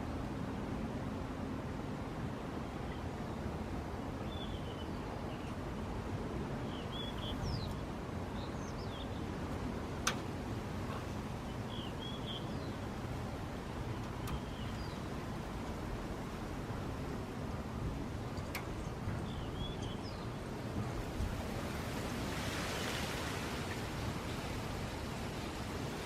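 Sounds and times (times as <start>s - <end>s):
small birds chirping: 6.7s - 9.4s, 10.9s - 12.9s, 13.8s - 15.3s, 18.4s - 20.7s.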